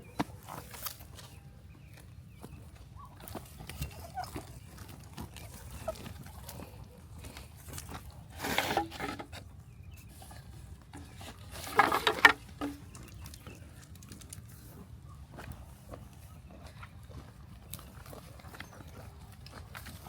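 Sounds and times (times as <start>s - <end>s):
farm animal calls: 0.0s - 9.2s
pattering clicks of animals: 12.8s - 14.7s.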